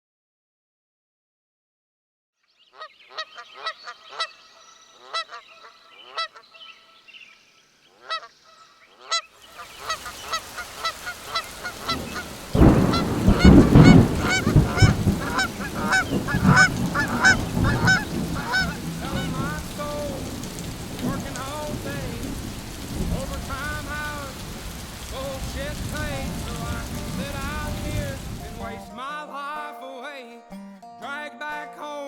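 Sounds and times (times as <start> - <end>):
honking bird calls: 2.7 - 29.0
steady hiss like rain: 9.3 - 28.9
loud low rumble: 25.2 - 28.8.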